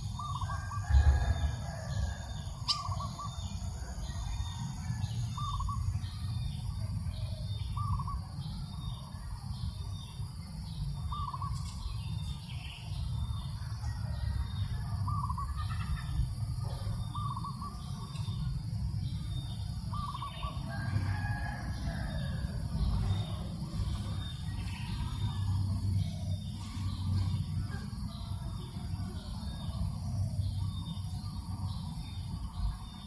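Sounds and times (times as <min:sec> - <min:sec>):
rooster crowing: 0:00.4 - 0:05.5, 0:13.6 - 0:15.2, 0:20.4 - 0:23.2.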